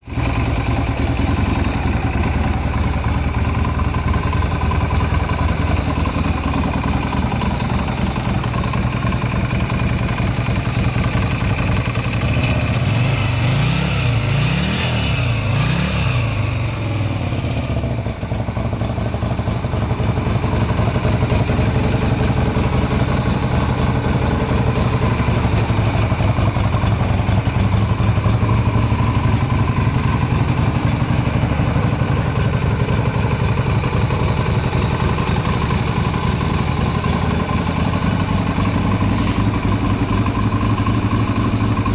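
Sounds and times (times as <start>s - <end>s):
motorcycle engine idling: 0.0s - 41.9s.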